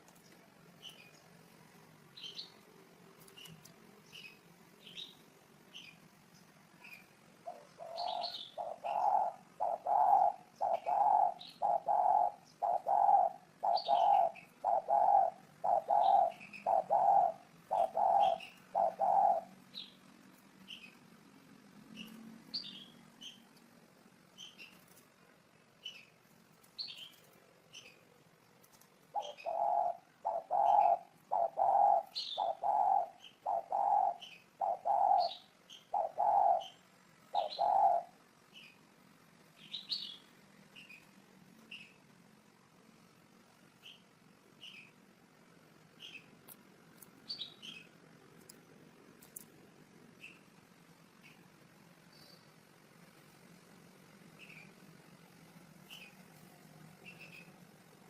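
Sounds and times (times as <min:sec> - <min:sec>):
small birds chirping: 0:00.0 - 0:58.0
dove cooing: 0:07.4 - 0:19.7, 0:29.1 - 0:38.2.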